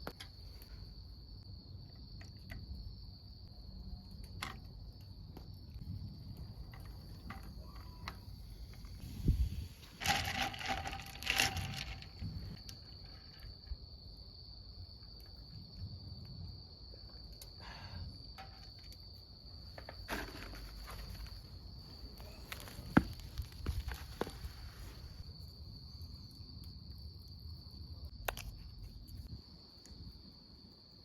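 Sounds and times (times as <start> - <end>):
crickets trilling: 0.0 - 31.0.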